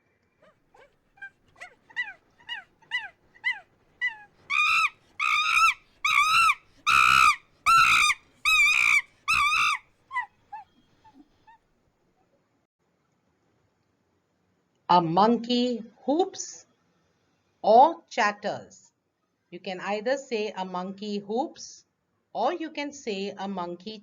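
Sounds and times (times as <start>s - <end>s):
monkey hooting: 0.4s - 11.2s.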